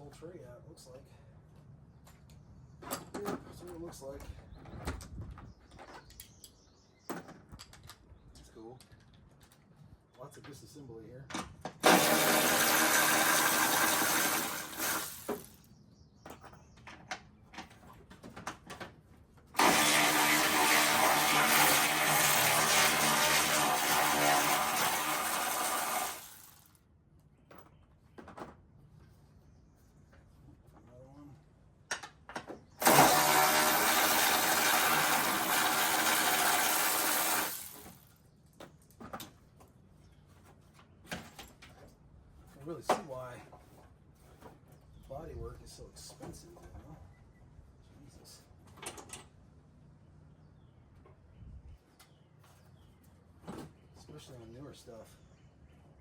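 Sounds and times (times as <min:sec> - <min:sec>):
power tool running: 0:11.8 - 0:15.6, 0:19.6 - 0:26.7, 0:32.8 - 0:38.0.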